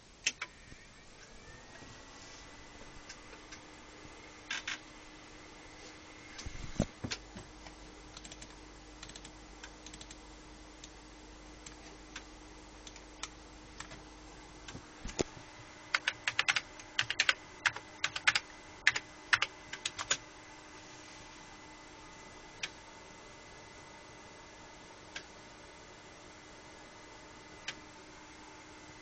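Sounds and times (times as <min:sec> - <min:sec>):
faint electrical hum: 0:00.0 - 0:29.0
computer keyboard typing: 0:08.1 - 0:10.2, 0:11.6 - 0:14.0, 0:15.9 - 0:20.2.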